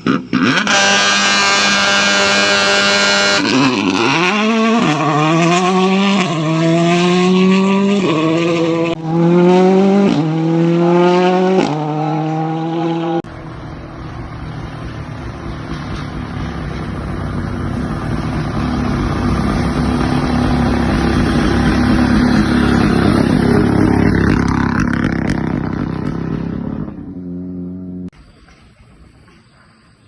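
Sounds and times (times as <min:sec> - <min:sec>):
rally car engine passing by: 0:00.2 - 0:28.1.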